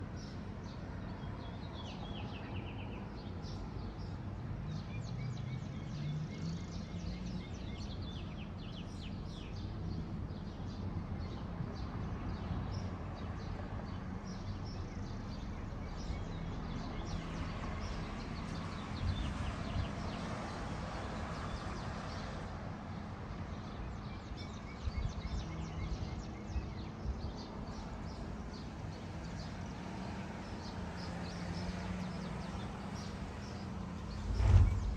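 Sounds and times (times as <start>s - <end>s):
low bumps: 33.8s - 34.9s
steady low rumble: 34.0s - 34.9s.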